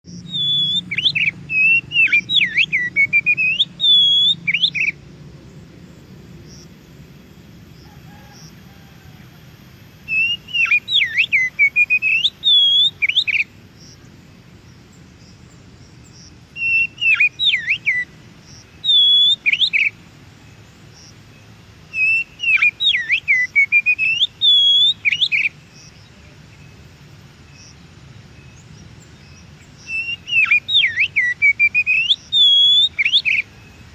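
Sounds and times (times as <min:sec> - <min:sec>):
bird singing whistled phrases: 0:00.2 - 0:05.0, 0:10.0 - 0:13.5, 0:16.6 - 0:20.0, 0:21.9 - 0:25.6, 0:29.8 - 0:33.7.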